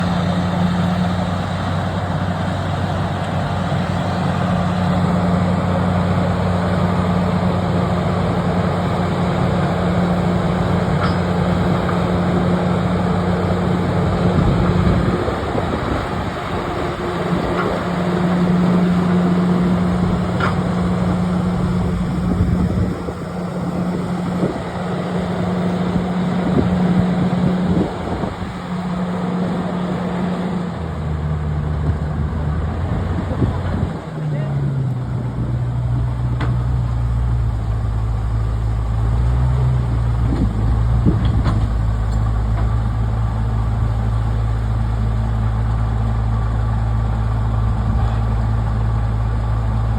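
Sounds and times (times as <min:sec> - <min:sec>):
bulldozer diesel engine under load: 0:00.0 - 0:49.9.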